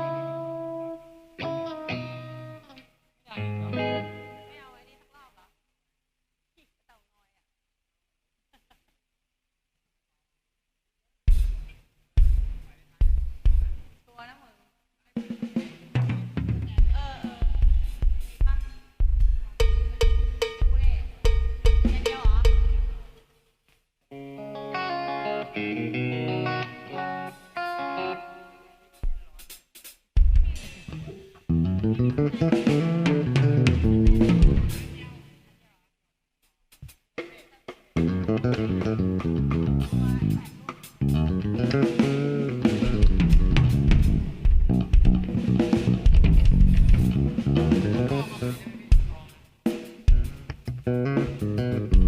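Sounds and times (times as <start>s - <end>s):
guitar playing chords and notes: 0.0s - 4.8s, 24.1s - 29.0s, 30.9s - 35.2s, 38.0s - 48.9s, 50.1s - 52.0s
drum kit: 11.3s - 14.0s, 15.2s - 23.3s, 28.9s - 35.2s, 36.7s - 52.0s.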